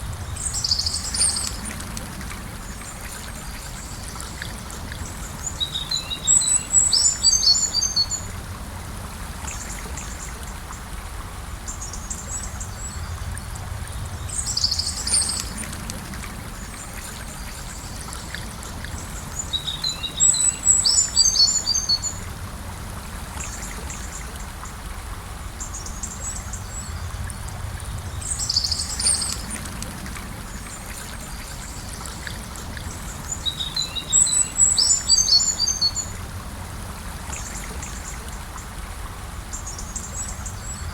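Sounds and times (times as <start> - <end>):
songbird singing: 0.0 - 8.4, 11.7 - 22.3, 25.6 - 36.2
river flowing: 0.0 - 40.9.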